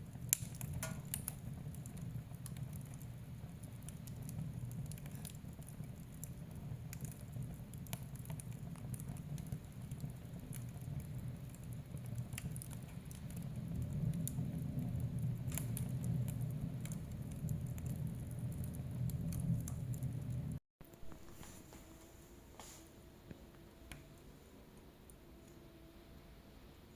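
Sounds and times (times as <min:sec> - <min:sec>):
flames rumbling: 0:00.0 - 0:21.4
wood fire crackling and popping: 0:00.0 - 0:21.4.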